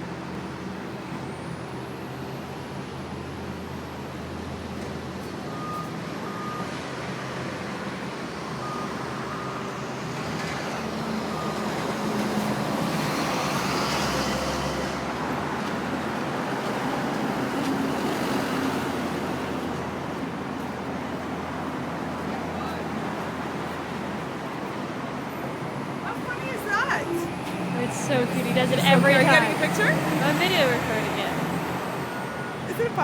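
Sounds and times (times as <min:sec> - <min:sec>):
street traffic: 0:00.0 - 0:33.0.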